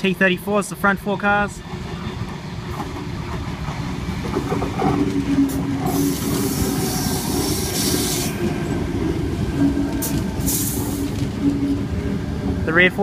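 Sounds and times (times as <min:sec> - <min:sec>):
train wheels rumbling on rails: 0:00.0 - 0:13.0
train hiss: 0:05.8 - 0:08.4, 0:10.0 - 0:11.4.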